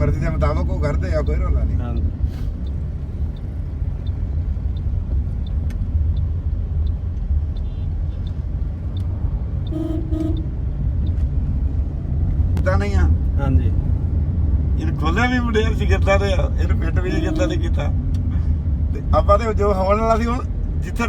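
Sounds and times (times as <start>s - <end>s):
car engine rumbling: 0.0s - 21.0s
car horn toots: 9.7s - 10.6s, 17.0s - 17.8s.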